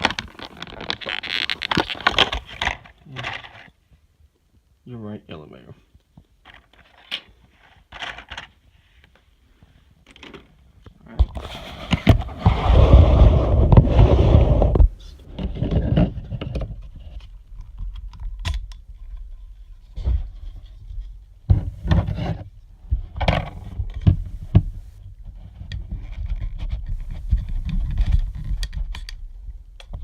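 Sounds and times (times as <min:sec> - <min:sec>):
packaging rustling and scraping: 0:00.0 - 0:03.7.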